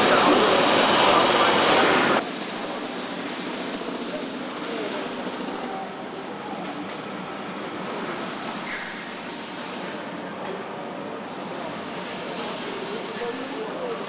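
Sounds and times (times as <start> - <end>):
steady machinery noise: 0.0 - 6.4.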